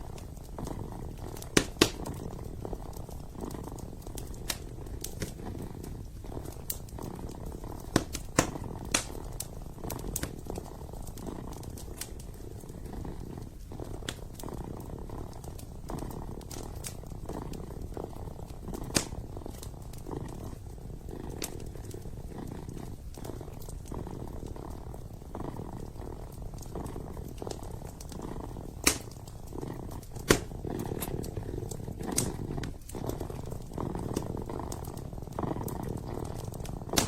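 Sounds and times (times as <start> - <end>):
kitten purring: 0.0 - 37.0
wood fire popping: 0.0 - 37.0.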